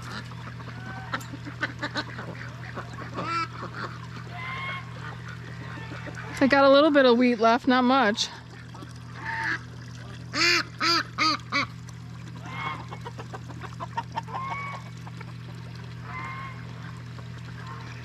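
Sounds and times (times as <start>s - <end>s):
steady low hum: 0.0s - 18.0s
poultry calling: 0.4s - 6.4s.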